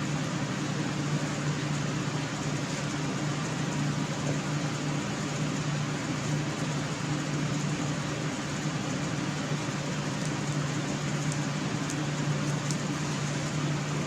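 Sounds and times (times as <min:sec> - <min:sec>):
mechanical hum with hiss: 0:00.0 - 0:14.0
faint light ticks: 0:12.6 - 0:12.8.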